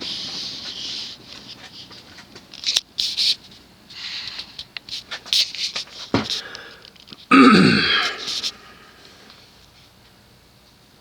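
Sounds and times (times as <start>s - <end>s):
person clearing throat: 7.3s - 8.7s.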